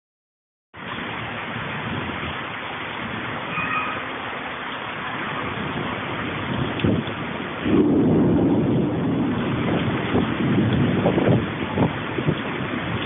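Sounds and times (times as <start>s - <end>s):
heavy rain: 0.8s - 13.0s
faint high tone: 3.5s - 4.1s.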